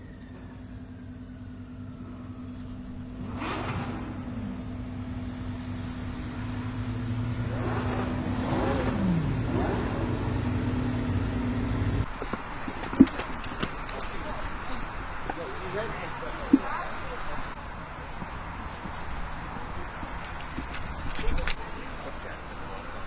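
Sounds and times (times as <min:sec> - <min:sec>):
car engine revving: 0:02.1 - 0:17.7.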